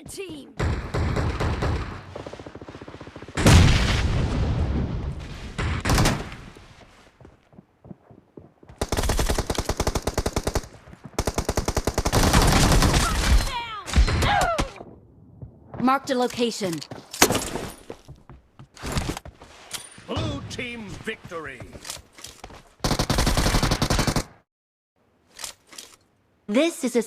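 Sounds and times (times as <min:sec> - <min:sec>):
machine-gun fire: 0:08.8 - 0:13.3, 0:22.8 - 0:24.4.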